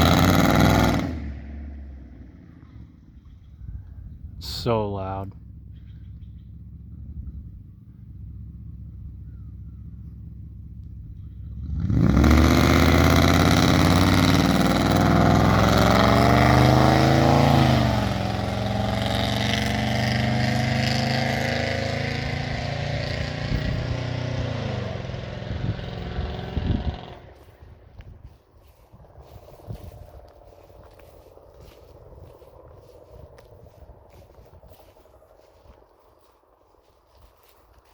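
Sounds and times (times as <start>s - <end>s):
loud car engine revving: 0.0s - 3.0s, 11.2s - 27.6s.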